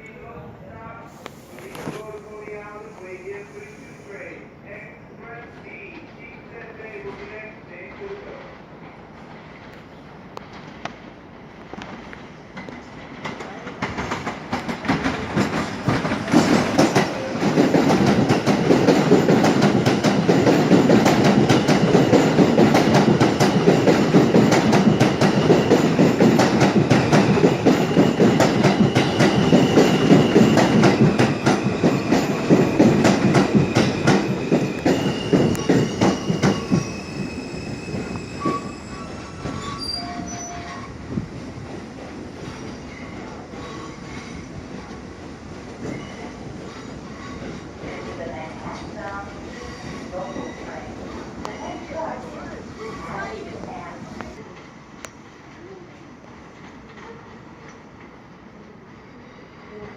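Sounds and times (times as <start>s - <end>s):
subway train rumble: 0.0s - 59.9s
wheels clacking over rail joints: 11.7s - 36.9s
wheels squealing: 27.2s - 41.0s.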